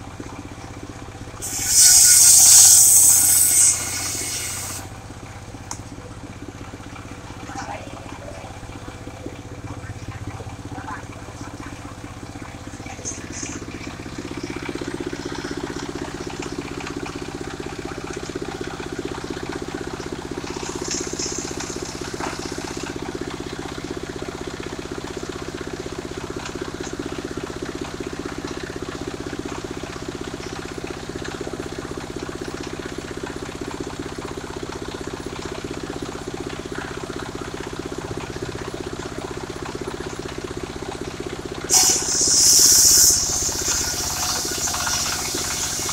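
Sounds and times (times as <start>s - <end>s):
sawmill engine running: 0.0s - 45.9s
high hiss: 1.4s - 4.9s, 41.7s - 45.9s.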